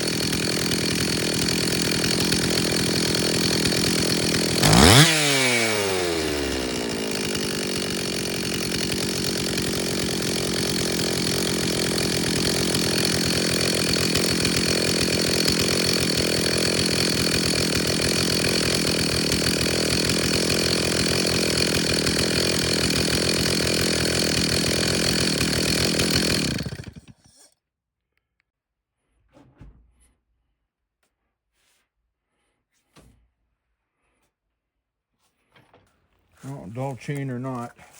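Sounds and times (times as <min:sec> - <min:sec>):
chainsaw engine idling: 0:00.0 - 0:27.3, 0:36.4 - 0:37.9.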